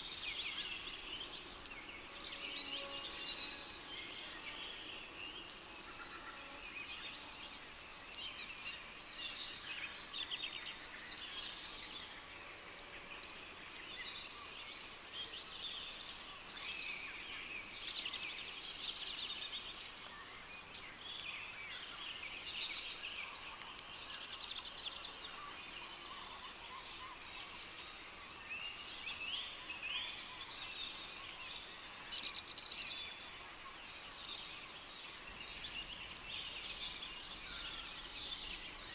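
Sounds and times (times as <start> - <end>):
cricket chirping: 33.7 - 38.9.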